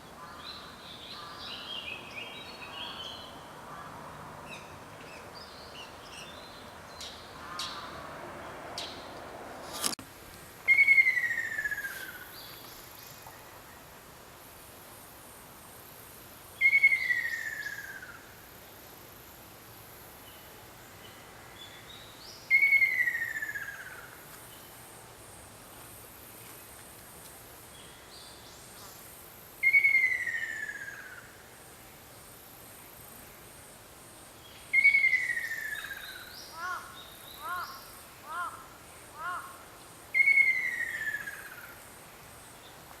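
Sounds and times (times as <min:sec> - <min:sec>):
insects hissing: 0:09.8 - 0:43.0.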